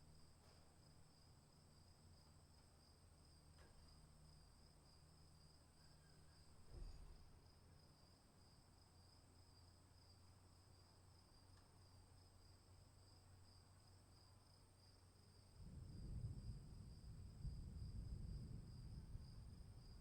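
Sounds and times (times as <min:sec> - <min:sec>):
crickets chirping: 0:00.0 - 0:20.0
low rumble: 0:15.6 - 0:20.0.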